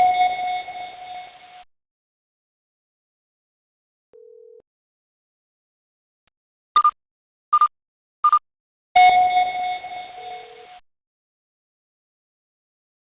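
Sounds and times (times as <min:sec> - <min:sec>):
short electronic beeps: 0:06.8 - 0:07.0, 0:07.6 - 0:08.4, 0:09.0 - 0:10.8
ringing chime: 0:09.0 - 0:10.8.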